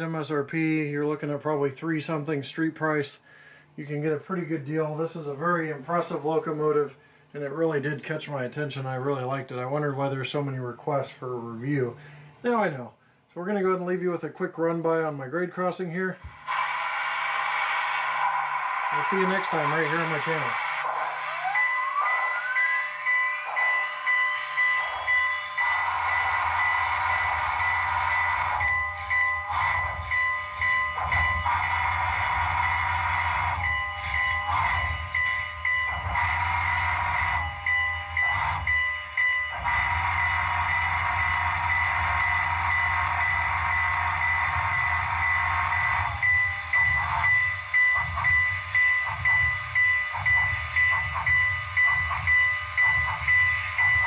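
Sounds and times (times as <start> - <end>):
steam locomotive chuffing: 16.3 - 54.0
steam whistle blasts: 16.4 - 38.8, 39.6 - 54.0.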